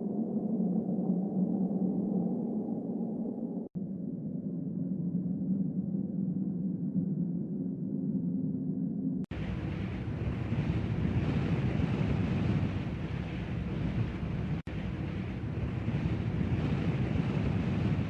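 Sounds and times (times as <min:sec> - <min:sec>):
strong storm wind blowing: 0:09.3 - 0:18.0.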